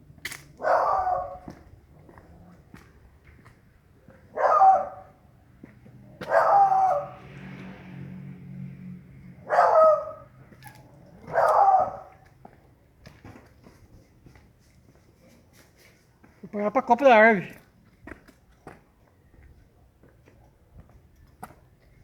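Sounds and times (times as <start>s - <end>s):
dog barking: 0.6s - 1.6s, 4.3s - 5.2s, 6.2s - 7.2s, 9.4s - 10.3s, 11.2s - 12.2s.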